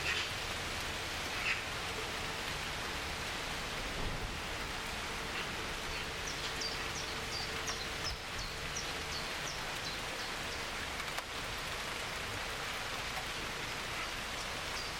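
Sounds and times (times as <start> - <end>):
heavy rain: 0.0 - 14.9
bird chirping: 5.9 - 10.6.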